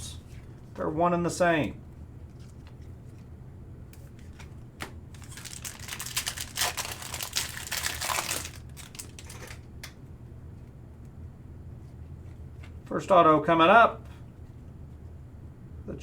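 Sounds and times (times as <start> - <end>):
low steady hum: 0.0 - 16.0
card pack wrapper crinkling: 5.1 - 9.7.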